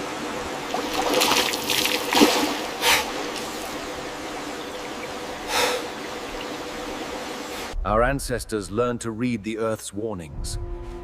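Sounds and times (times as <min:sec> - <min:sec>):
rushing splashing water: 0:00.0 - 0:07.7.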